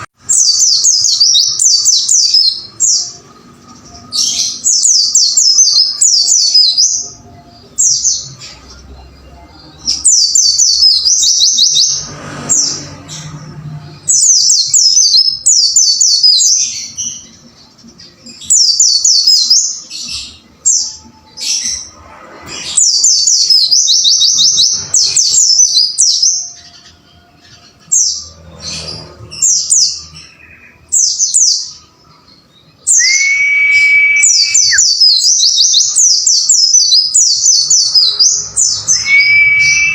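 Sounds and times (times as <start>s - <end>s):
bird chirping song: 0.0s - 39.9s
steady whistle: 33.0s - 34.9s, 39.0s - 39.9s.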